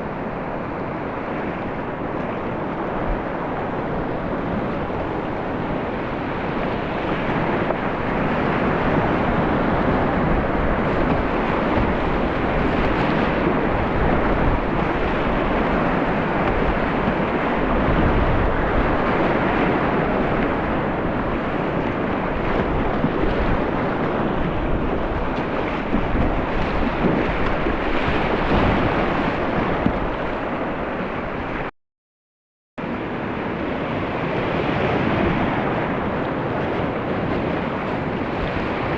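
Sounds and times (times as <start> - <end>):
river water rushing: 32.8 - 38.9.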